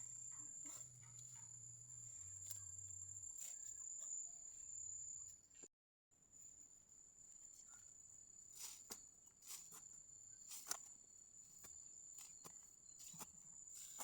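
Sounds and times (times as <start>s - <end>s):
high-pitched insect trill: 0.0s - 5.6s.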